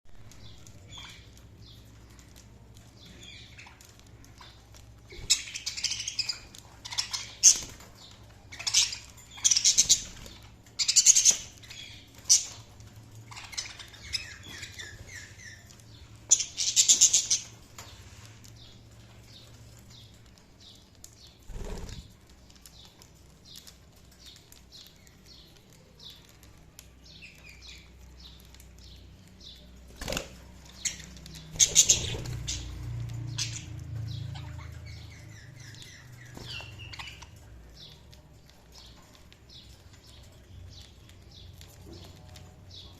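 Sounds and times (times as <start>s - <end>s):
budgerigars chirping: 3.0s - 17.6s, 27.3s - 38.0s.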